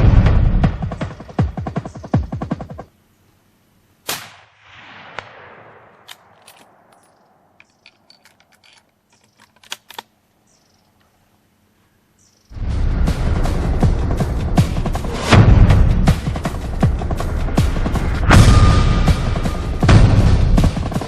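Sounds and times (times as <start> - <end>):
rifle shot: 4.0 - 7.0.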